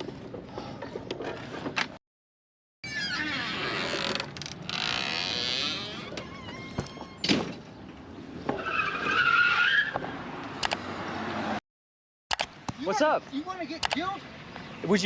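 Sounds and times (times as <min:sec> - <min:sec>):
car tyres squealing: 0:08.5 - 0:10.1.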